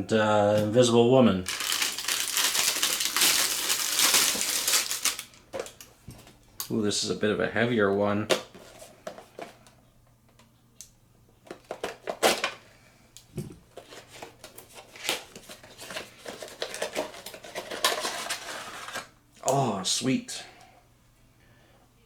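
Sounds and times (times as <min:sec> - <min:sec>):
plastic packaging crinkling: 0:01.4 - 0:05.9
plastic figures clacking: 0:01.5 - 0:05.4.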